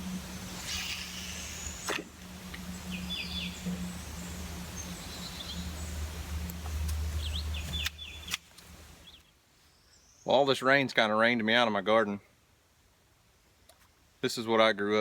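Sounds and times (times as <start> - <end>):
low rumble: 0.0 - 9.1
small birds chirping: 0.0 - 10.6
outdoor background hiss: 0.0 - 15.0.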